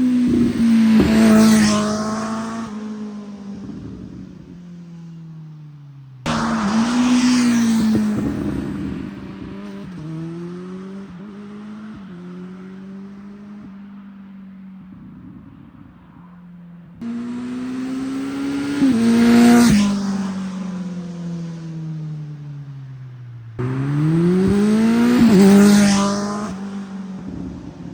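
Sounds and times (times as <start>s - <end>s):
motorcycle accelerating past: 0.0s - 3.0s, 6.3s - 13.6s, 17.0s - 20.9s, 23.6s - 27.5s.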